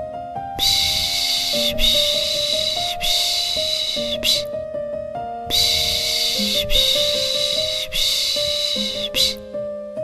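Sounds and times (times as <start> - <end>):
soft lullaby melody: 0.0 - 10.0
shushing hiss: 0.6 - 4.5, 5.5 - 9.4.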